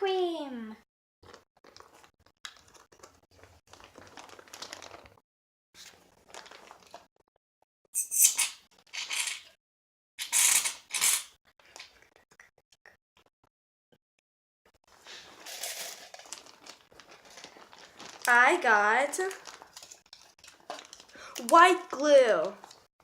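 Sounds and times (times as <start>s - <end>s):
handling and scraping: 14.9s - 18.3s.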